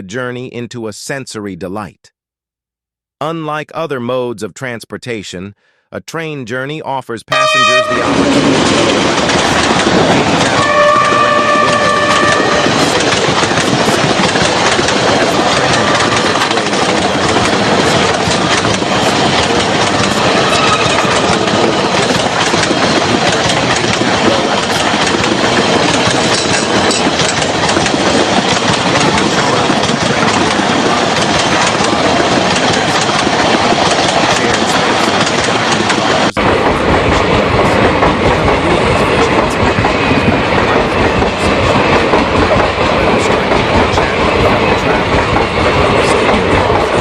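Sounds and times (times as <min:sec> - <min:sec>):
train wheels rumbling on rails: 0:07.3 - 0:47.0.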